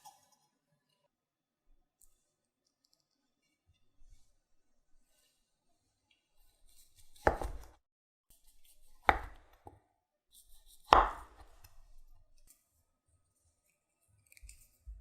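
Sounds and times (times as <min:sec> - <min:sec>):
knife chopping on cutting board: 0:07.0 - 0:07.8, 0:08.8 - 0:09.8, 0:10.6 - 0:11.7.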